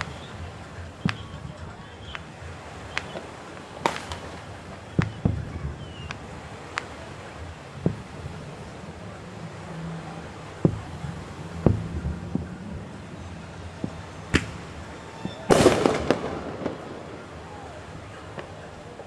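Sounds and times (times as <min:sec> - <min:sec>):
firework crackling burst: 0:00.0 - 0:08.7, 0:13.0 - 0:19.0
firework bangs: 0:00.0 - 0:19.0.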